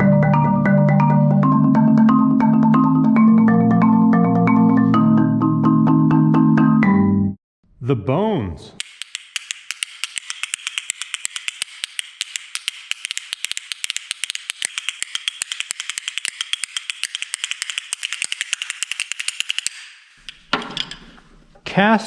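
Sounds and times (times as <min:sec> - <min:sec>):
percussion bones clicking: 0:08.8 - 0:21.6.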